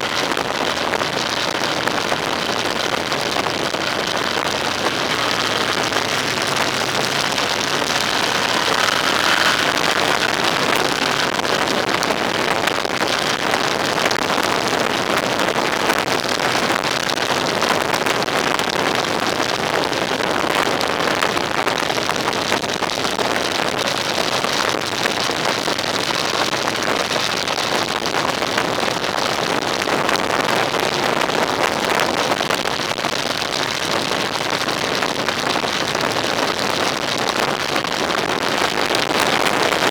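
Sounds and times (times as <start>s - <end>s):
vehicle road noise: 0.2s - 13.4s
rushing wind: 1.0s - 12.8s.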